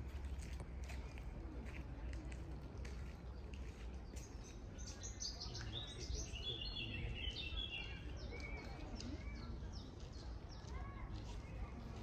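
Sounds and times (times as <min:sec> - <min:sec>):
small birds chirping: 0:02.9 - 0:12.0.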